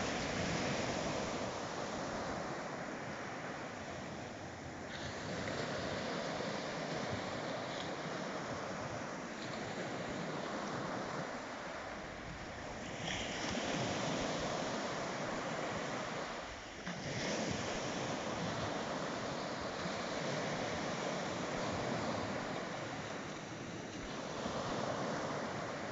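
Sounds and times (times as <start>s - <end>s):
sea waves breaking on shore: 0.0s - 25.9s
wind on microphone: 0.0s - 25.9s.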